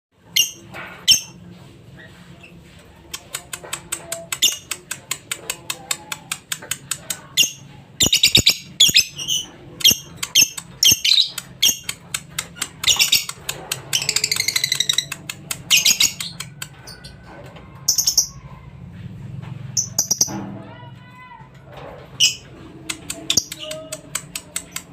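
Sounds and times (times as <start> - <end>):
lovebird chirping: 7.4 - 12.0, 12.8 - 16.4.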